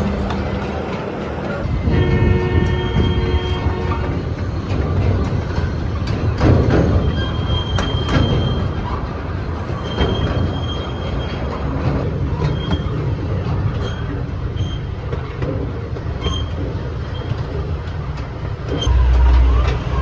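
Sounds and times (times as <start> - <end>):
high wheel squeals: 0.0 - 13.1
miniature train rumbling: 0.0 - 20.0.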